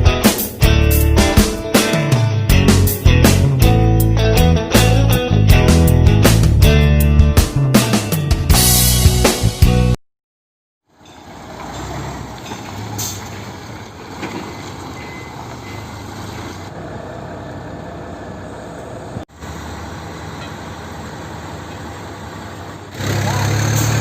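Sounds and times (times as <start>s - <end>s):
truck diesel engine running: 11.2s - 24.0s.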